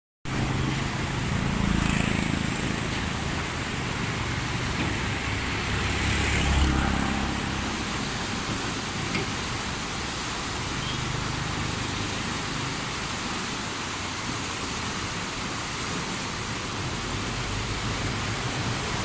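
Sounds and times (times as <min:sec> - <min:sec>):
vehicle engine humming: 0:00.3 - 0:13.6
rushing noise: 0:00.3 - 0:19.0.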